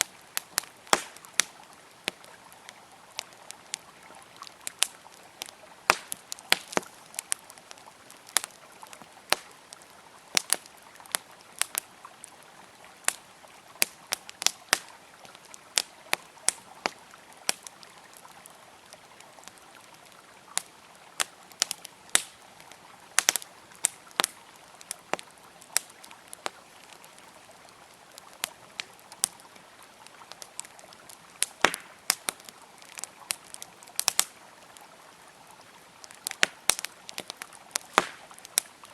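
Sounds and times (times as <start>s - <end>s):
river water flowing: 0.0s - 38.9s
wood fire crackling: 0.0s - 38.9s.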